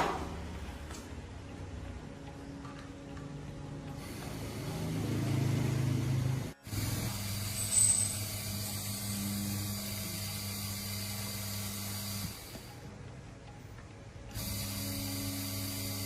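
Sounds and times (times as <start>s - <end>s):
small electric motor humming: 3.9s - 12.8s, 14.3s - 16.0s.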